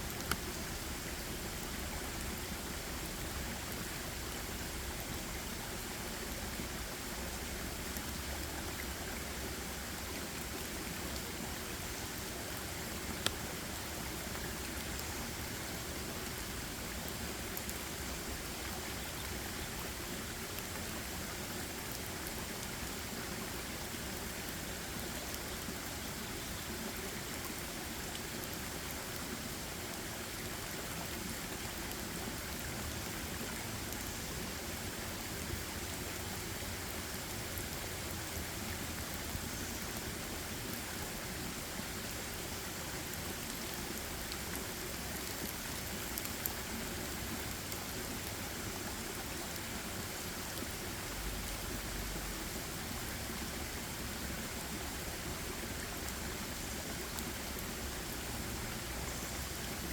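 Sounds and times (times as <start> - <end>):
faint ticks: 0.0 - 0.6, 12.5 - 13.4.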